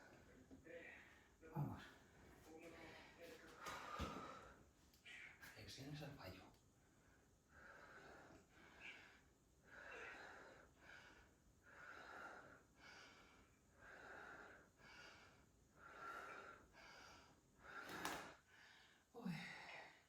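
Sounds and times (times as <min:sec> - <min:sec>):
woman breathing hard: 0:02.6 - 0:05.4, 0:06.9 - 0:20.0.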